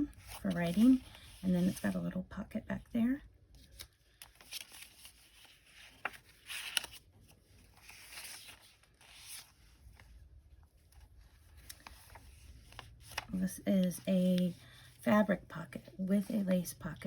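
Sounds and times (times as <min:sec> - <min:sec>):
paper pages rustling: 0:00.0 - 0:02.1, 0:03.6 - 0:14.6.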